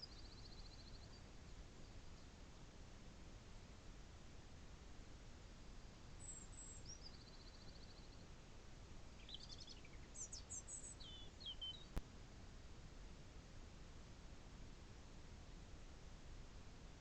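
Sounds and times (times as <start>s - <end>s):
songbirds singing: 0.0s - 2.4s, 6.0s - 8.4s, 9.0s - 12.0s
low background hiss: 0.0s - 17.0s.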